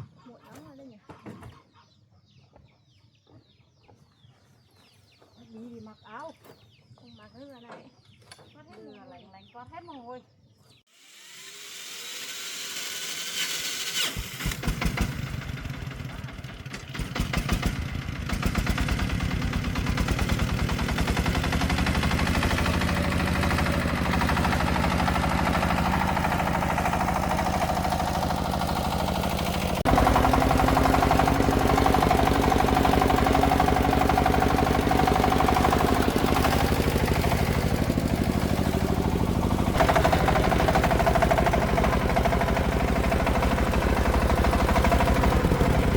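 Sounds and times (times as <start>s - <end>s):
diesel engine starting and running: 11.5s - 45.9s.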